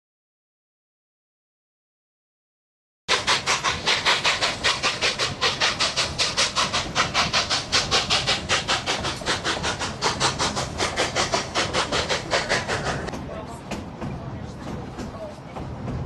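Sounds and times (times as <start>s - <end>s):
steam hiss: 3.1s - 13.1s
steam locomotive exhaust chuffs: 3.1s - 16.0s.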